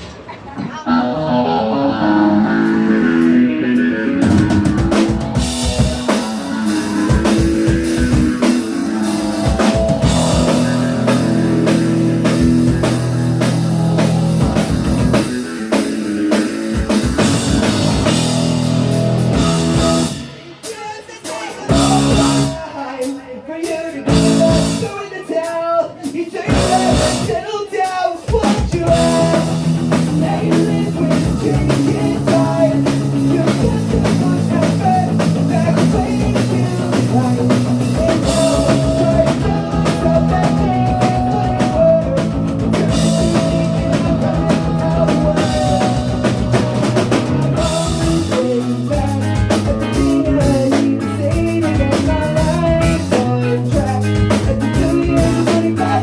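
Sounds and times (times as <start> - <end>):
electric guitar: 0.0 - 20.7, 28.6 - 56.0
drums: 0.0 - 56.0
person singing: 0.7 - 56.0.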